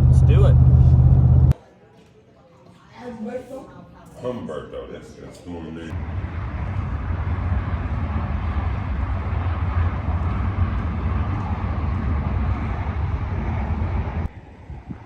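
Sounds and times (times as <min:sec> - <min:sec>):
truck engine and road rumble: 0:00.0 - 0:01.5, 0:05.9 - 0:15.0
rushing noise: 0:05.9 - 0:15.0.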